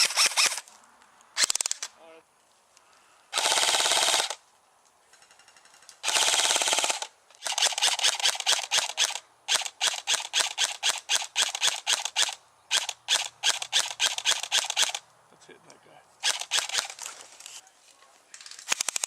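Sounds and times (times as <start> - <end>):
airsoft rifle firing: 3.4 - 4.4, 6.0 - 15.0, 16.2 - 17.0.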